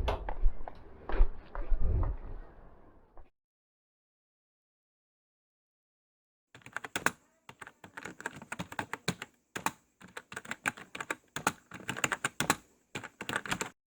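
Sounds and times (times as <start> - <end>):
keyboard typing clicks: 6.6 - 13.8.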